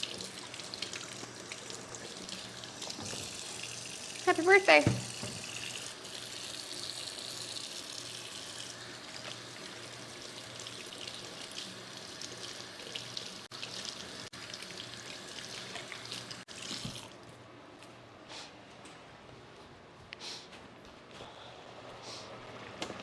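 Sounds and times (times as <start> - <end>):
tap water running into sink: 0.0 - 17.2.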